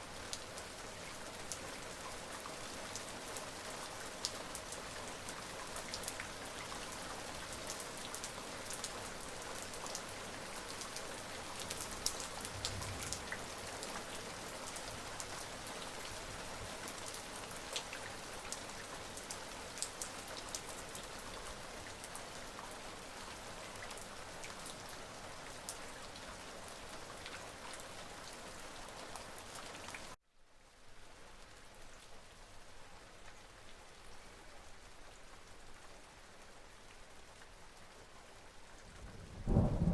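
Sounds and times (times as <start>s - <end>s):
steady rain falling: 0.0s - 39.9s
raindrops ticking close by: 0.2s - 30.2s, 30.8s - 39.9s.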